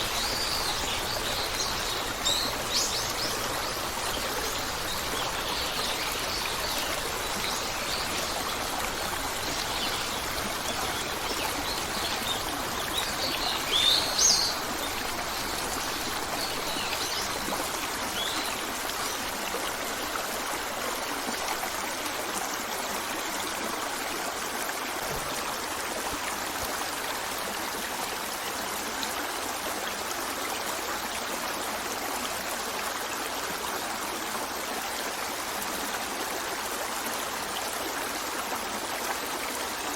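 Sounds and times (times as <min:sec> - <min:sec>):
birds chirping: 0:00.0 - 0:18.7
stream water rushing: 0:00.0 - 0:39.9.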